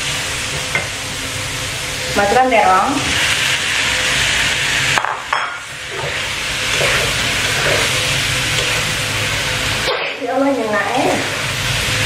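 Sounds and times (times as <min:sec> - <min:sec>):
eggplant sizzling in hot oil: 0:00.0 - 0:12.0
metal spatula scraping a wok: 0:05.9 - 0:09.0.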